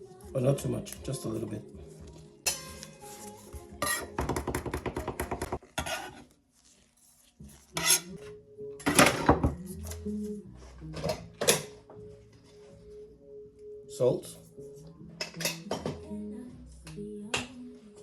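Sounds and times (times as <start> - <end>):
utensils and dishes clattering: 2.4 - 3.2, 3.8 - 6.2, 7.6 - 9.6, 10.9 - 11.9, 15.2 - 16.0.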